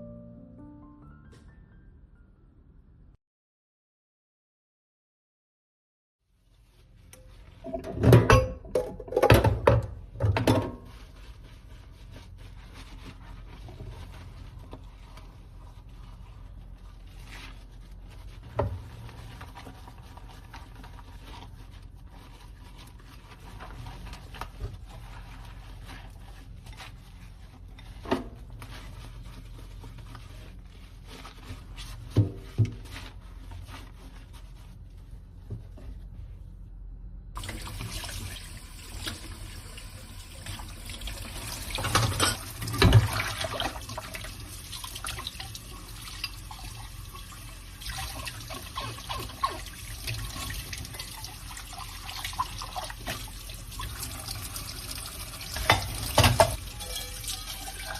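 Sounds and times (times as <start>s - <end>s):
tap water running: 37.4s - 57.9s.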